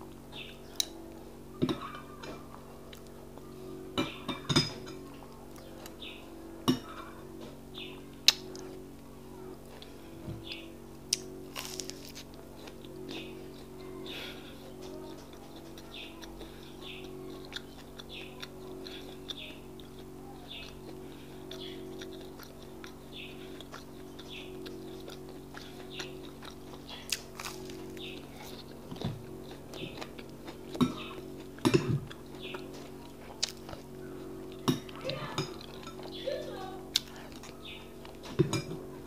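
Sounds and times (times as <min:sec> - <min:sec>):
steady low hum: 0:00.0 - 0:39.0
close chewing mouth sounds: 0:09.6 - 0:38.7.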